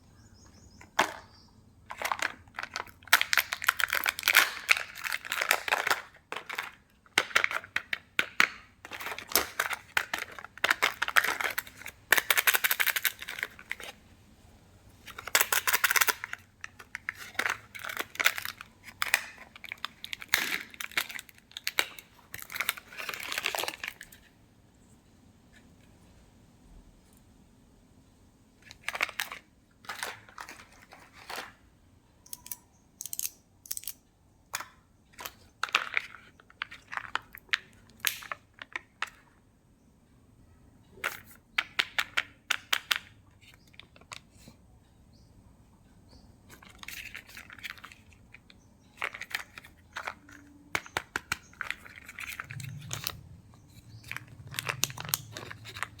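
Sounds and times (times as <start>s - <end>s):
packaging tearing and crinkling: 1.9s - 6.6s, 17.0s - 24.1s, 51.6s - 56.0s.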